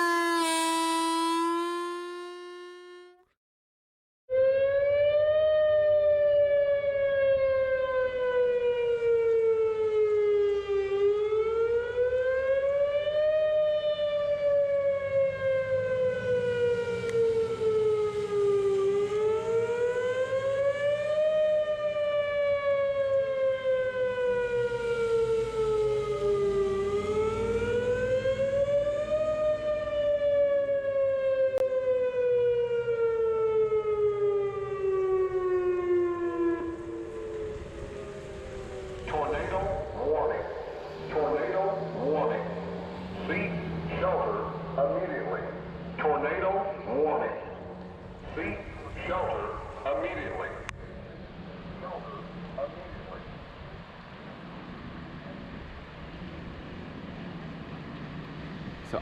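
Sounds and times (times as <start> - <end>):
tornado warning siren wailing: 0.0 - 3.2, 4.3 - 59.0.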